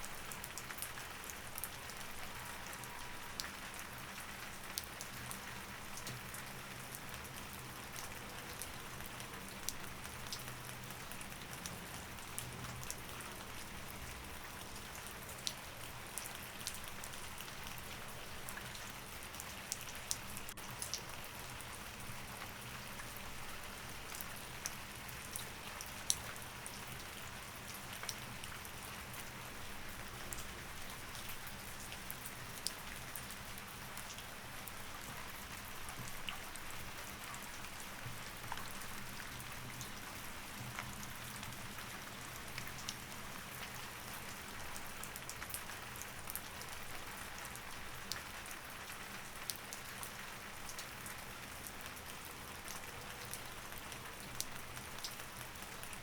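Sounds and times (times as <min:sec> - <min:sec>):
steady rain falling: 0:00.0 - 0:56.0
raindrops clicking on a surface: 0:04.7 - 0:15.6, 0:30.1 - 0:56.0.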